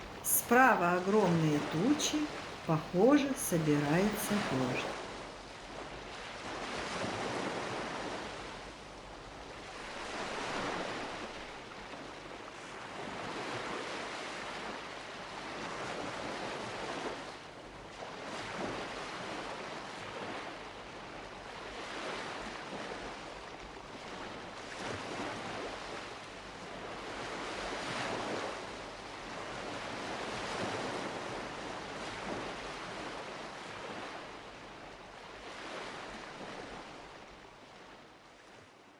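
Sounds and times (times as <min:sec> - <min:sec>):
waves breaking on shore: 0:00.0 - 0:38.9.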